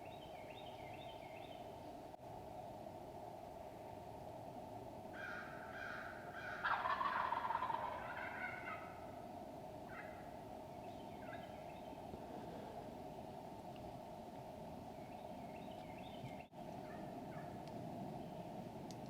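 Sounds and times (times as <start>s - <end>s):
steady background hiss: 0.0s - 19.0s
turkeys gobbling: 5.8s - 9.1s.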